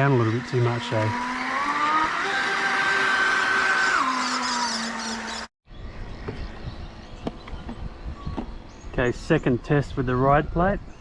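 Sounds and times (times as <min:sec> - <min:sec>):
toy boat motor whining: 0:00.0 - 0:05.5.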